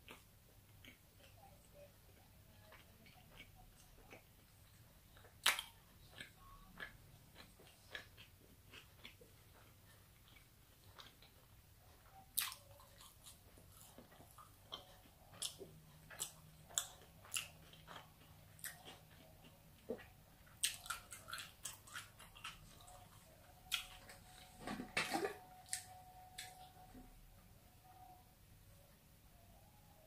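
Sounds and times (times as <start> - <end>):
wet chewing mouth clicks: 0.0 - 24.0.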